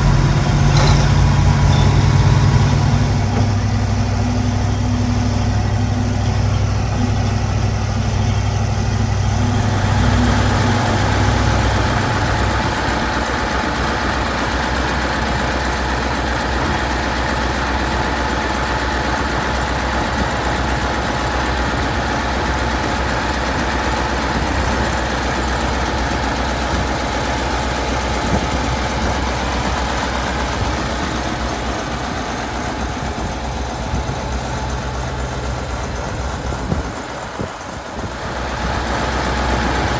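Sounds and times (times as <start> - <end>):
steady whine: 0.0 - 16.4
tractor engine running: 0.0 - 39.9.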